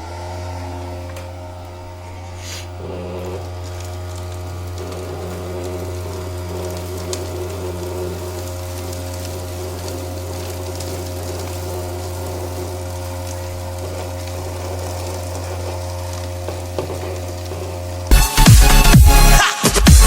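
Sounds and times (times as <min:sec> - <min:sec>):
small electric motor humming: 0:00.0 - 0:19.4
electronic dance music: 0:18.1 - 0:20.0.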